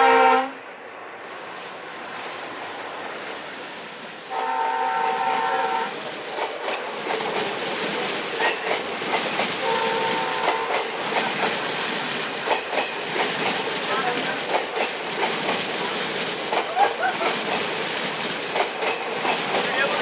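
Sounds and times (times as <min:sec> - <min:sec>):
locomotive multi-note horn: 0:00.0 - 0:00.6, 0:04.3 - 0:06.0, 0:09.6 - 0:10.8
train wheels clacking on rail joints: 0:05.0 - 0:20.0.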